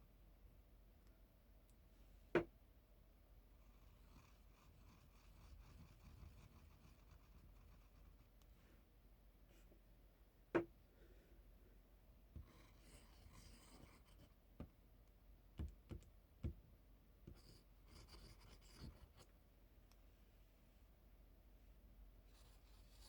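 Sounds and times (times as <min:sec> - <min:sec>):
scratching strokes on a surface: 0:03.6 - 0:08.4, 0:12.4 - 0:14.4, 0:17.3 - 0:19.3.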